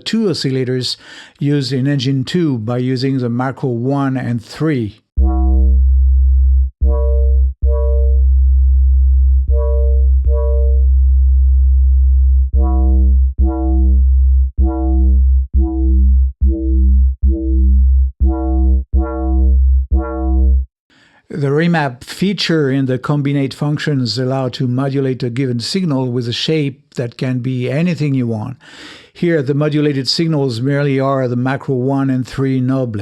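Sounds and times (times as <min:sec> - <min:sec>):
deep continuous low tone: 0:05.2 - 0:20.7
synth bass riff: 0:05.2 - 0:20.8.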